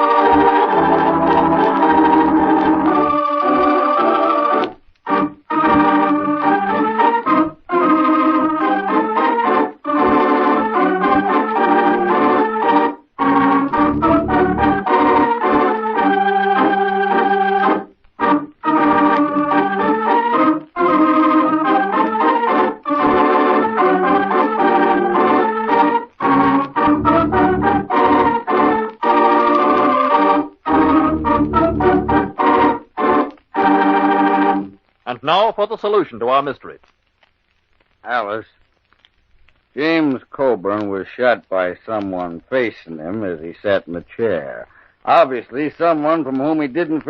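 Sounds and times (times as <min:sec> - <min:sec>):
organ music: 0:00.0 - 0:34.8.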